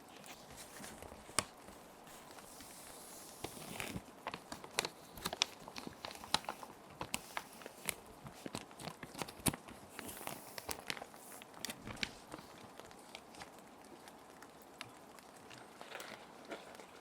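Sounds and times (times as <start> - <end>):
plastic sheet protectors crinkling: 0.0 - 13.6.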